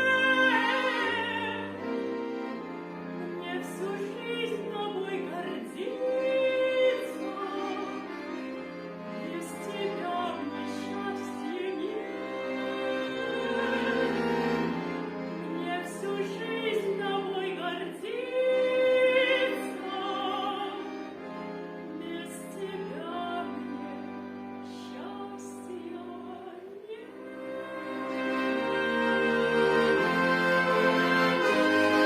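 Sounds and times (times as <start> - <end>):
woman singing with vibrato: 0.0 - 1.8, 3.2 - 8.1, 9.2 - 14.3, 15.4 - 20.9, 22.0 - 24.0, 24.6 - 32.0
instrumental accompaniment: 0.0 - 32.0.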